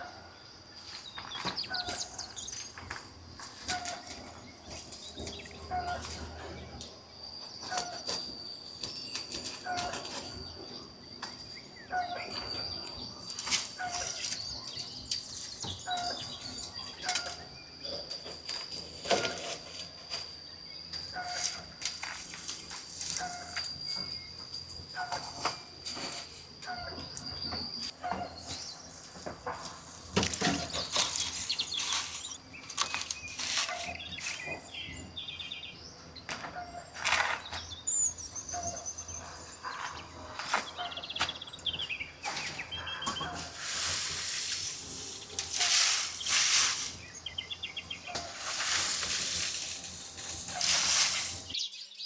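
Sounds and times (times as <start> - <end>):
small birds chirping: 0.0 - 52.0
rustling or scraping: 0.8 - 6.7, 21.1 - 26.8, 27.9 - 35.1, 42.2 - 51.6.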